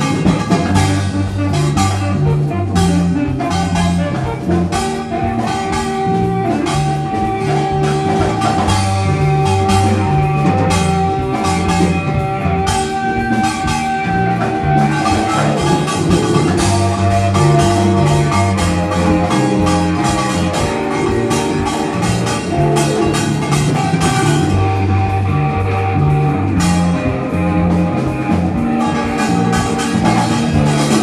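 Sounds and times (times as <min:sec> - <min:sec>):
bass line: 0:00.0 - 0:31.0
drum kit: 0:00.0 - 0:31.0
guitar: 0:00.0 - 0:31.0.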